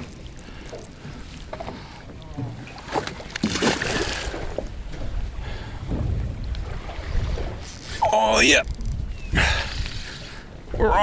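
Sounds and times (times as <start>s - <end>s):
water moving around boat: 0.0s - 11.0s
wind buffeting microphone: 4.3s - 8.0s, 8.6s - 11.0s
person exclaiming: 8.0s - 8.7s.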